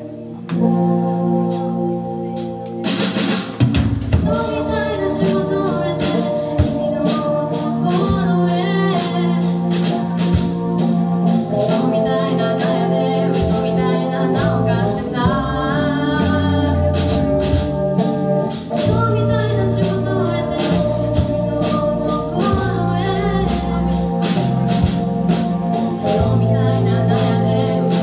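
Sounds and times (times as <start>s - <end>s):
rock band playing: 0.0s - 28.0s
person singing: 4.1s - 10.8s, 11.4s - 28.0s.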